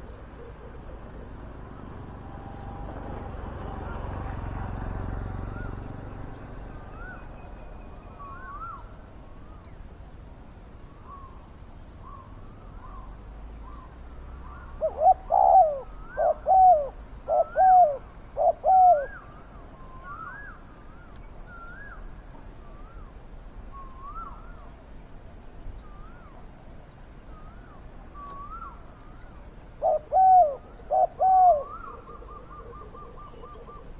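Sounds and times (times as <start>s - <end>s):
dove cooing: 0.0s - 7.3s, 14.4s - 19.4s, 29.7s - 33.9s.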